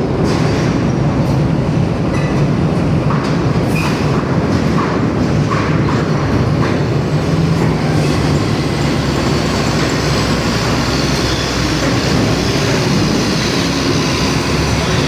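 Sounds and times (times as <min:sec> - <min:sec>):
road rumble: 0:06.1 - 0:15.0
truck engine drone: 0:06.2 - 0:15.0.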